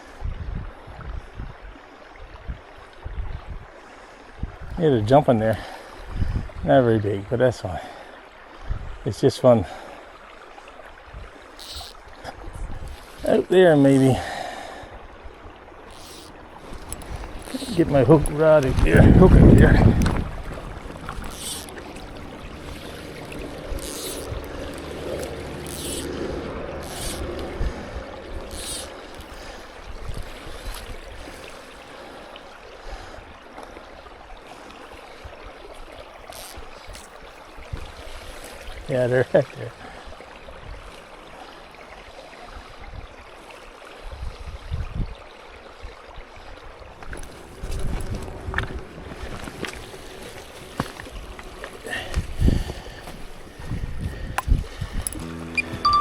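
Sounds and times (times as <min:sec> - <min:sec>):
low outdoor background: 0:06.7 - 0:33.6
running water hiss: 0:07.0 - 0:45.0, 0:46.4 - 0:55.7
fly line hissing zips: 0:15.9 - 0:17.9, 0:21.2 - 0:29.4
low rumbles: 0:16.2 - 0:30.3.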